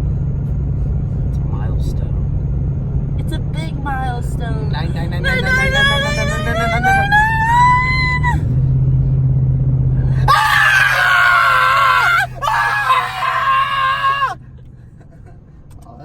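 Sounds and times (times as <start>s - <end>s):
engine and road drone: 0.0s - 16.0s
person screaming excitedly: 10.2s - 14.4s.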